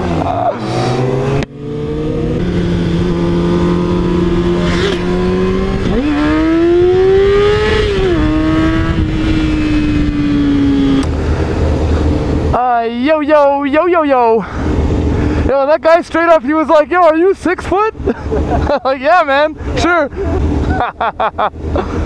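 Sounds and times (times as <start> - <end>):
motorcycle engine revving: 0.0 - 12.6
wind rush: 0.8 - 12.6.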